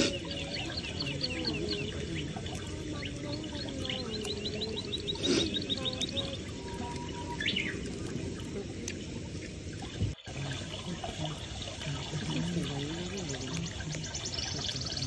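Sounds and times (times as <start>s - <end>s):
bird chirping: 0.0s - 7.9s
steady outdoor hiss: 0.0s - 15.0s.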